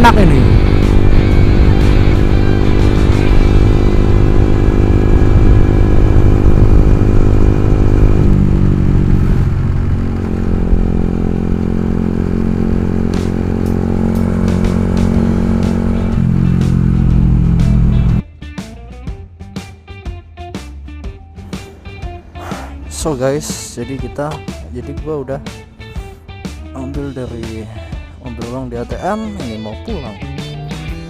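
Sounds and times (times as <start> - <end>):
motorcycle engine running: 0.0 - 18.2.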